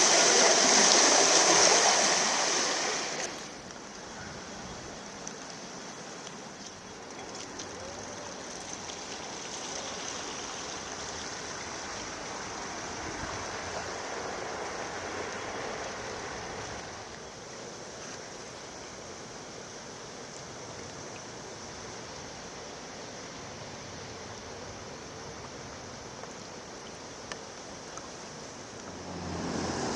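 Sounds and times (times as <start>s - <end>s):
floodwater rushing: 0.0s - 4.2s, 7.1s - 17.2s, 28.4s - 29.9s.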